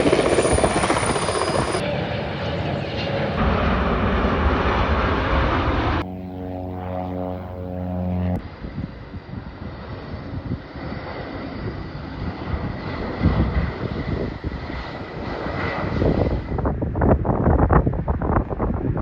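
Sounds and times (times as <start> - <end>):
jet engines roaring: 0.0 - 16.9
steady engine hum: 3.3 - 8.4.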